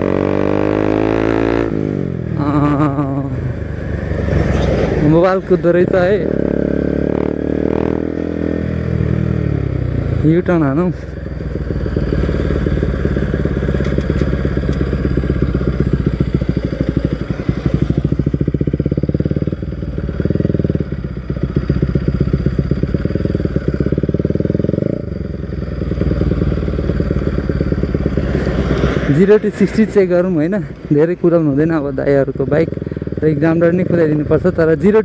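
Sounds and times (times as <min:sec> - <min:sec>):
motorcycle engine at low revs: 0:00.0 - 0:35.0.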